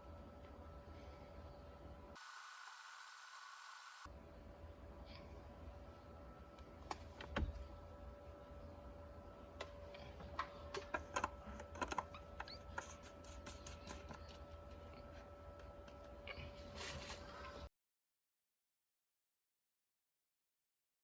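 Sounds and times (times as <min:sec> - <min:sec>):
faint electrical hum: 0:00.0 - 0:17.7.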